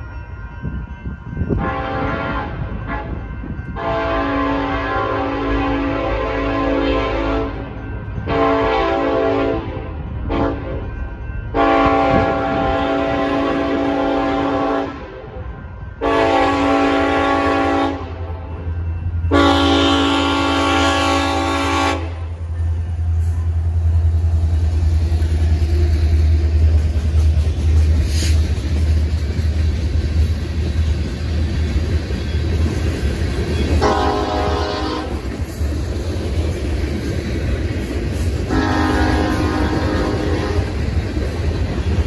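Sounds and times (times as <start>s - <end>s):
diesel locomotive engines rumbling: 0.0s - 42.0s
train air horn blasts: 1.6s - 3.2s, 3.8s - 7.7s, 8.3s - 10.9s, 11.6s - 18.7s, 19.3s - 23.7s, 33.7s - 35.4s, 38.4s - 40.8s
freight cars rolling past: 16.9s - 42.0s.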